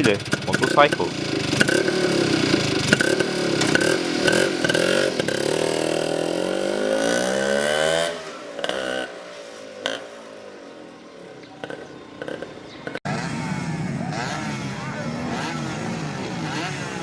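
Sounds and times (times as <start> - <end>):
loud motorcycle engine: 0.0 - 17.0.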